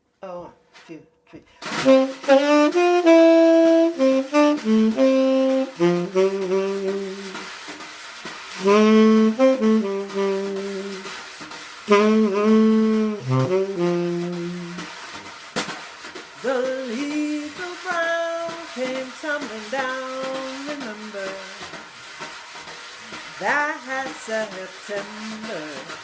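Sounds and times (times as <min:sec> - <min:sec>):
saxophone playing swinging melody: 0:01.7 - 0:07.7, 0:08.4 - 0:15.1, 0:16.4 - 0:21.7, 0:23.4 - 0:26.0.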